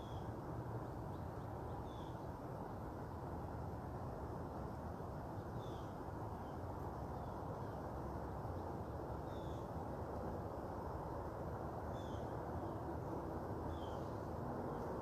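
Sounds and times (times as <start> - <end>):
bird chirping: 11.9 - 12.8, 13.7 - 14.9.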